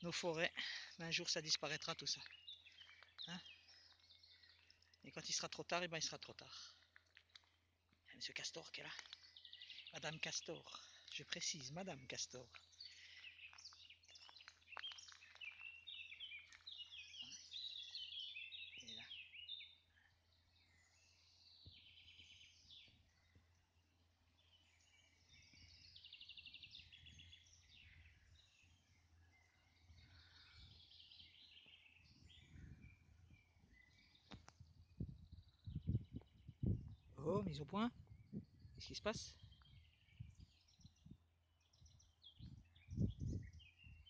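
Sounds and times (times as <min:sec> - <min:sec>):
small birds chirping and trilling: 0:00.0 - 0:44.0.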